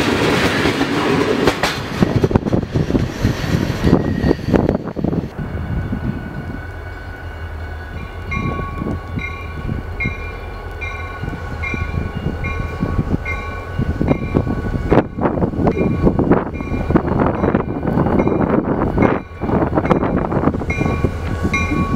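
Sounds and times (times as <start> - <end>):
diesel locomotive rumbling: 0.0 - 21.9.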